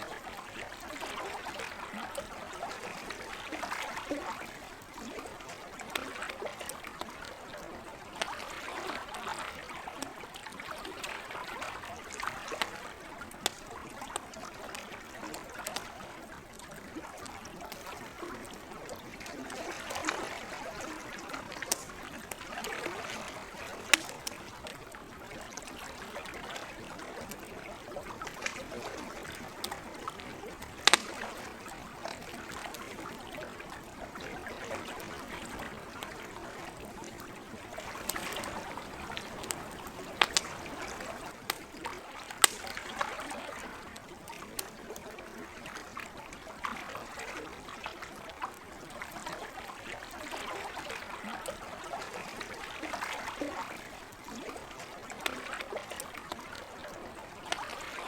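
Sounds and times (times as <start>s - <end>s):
lake water lapping at shore: 0.0s - 58.0s
campfire crackling: 0.1s - 47.2s, 48.5s - 58.0s.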